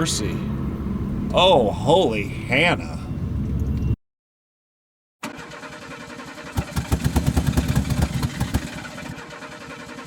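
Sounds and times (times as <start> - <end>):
truck engine running roughly: 5.3 - 10.0
loud rapid engine pops: 6.5 - 9.2.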